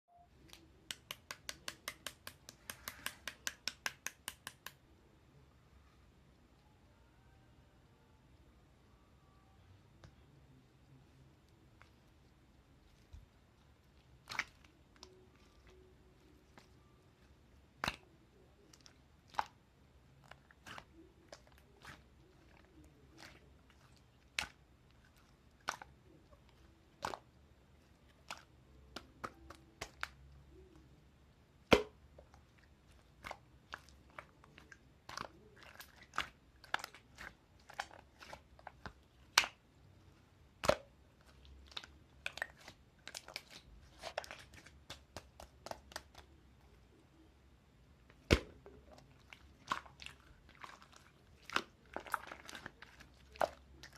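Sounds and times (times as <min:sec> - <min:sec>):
slime clicking and popping: 0:00.4 - 0:04.8.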